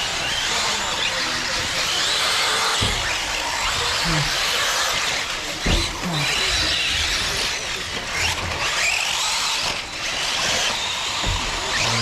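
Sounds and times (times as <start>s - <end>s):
electric motors whining: 0.0s - 12.0s
tyres on dirt: 7.6s - 12.0s
low thump: 11.2s - 11.9s.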